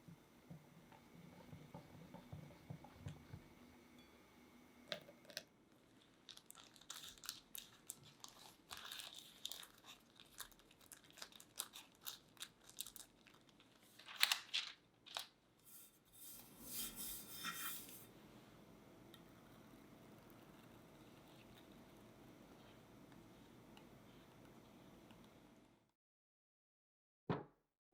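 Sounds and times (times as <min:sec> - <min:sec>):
crackling and crinkling materials: 0:05.2 - 0:16.4.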